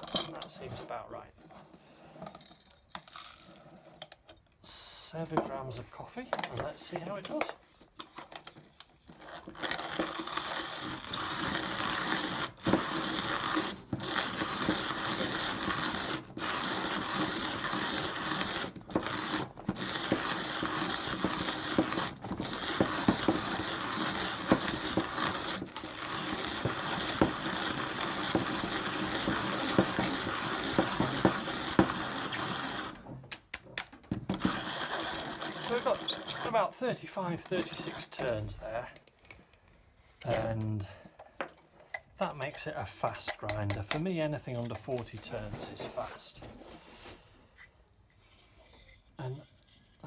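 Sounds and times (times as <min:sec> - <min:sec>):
hand coffee grinder crunching: 0:09.2 - 0:36.6.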